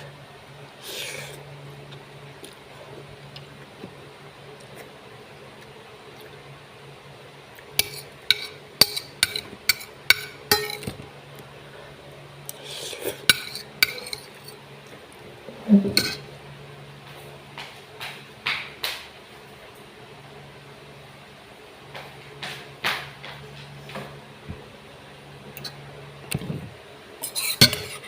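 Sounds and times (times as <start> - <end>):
utensils clinking on a bowl: 7.8 - 11.0, 13.1 - 14.6, 15.8 - 16.3, 27.2 - 28.0.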